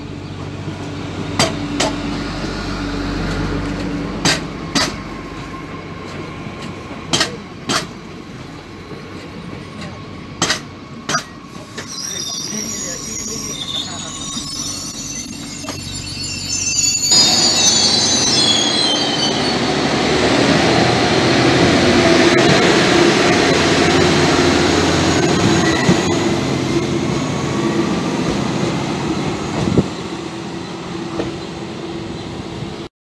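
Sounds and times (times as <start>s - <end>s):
train wheels on rails: 0.0s - 32.9s
train wheel squeal: 11.1s - 19.8s, 25.0s - 26.9s.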